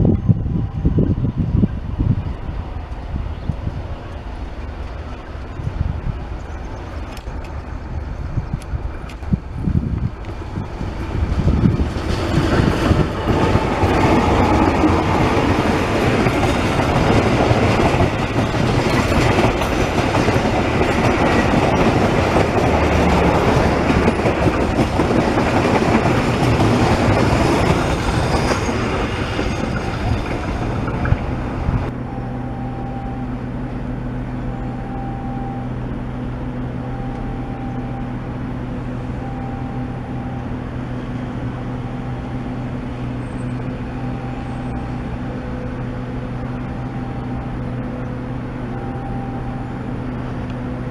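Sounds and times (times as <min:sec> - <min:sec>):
train wheels clattering over rails: 0:10.0 - 0:31.9.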